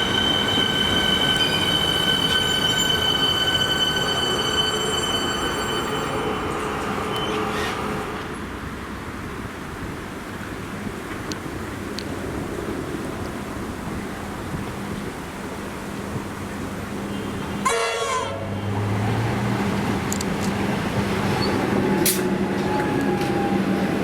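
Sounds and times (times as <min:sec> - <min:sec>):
train wheels squealing: 0:00.0 - 0:08.4, 0:21.3 - 0:24.0
train rumbling: 0:00.0 - 0:24.0.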